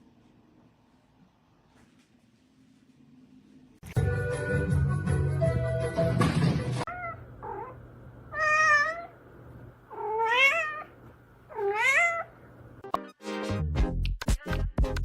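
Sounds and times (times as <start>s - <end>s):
music: 3.8s - 6.9s, 12.8s - 15.0s
cat meowing: 6.9s - 9.2s, 9.9s - 12.4s.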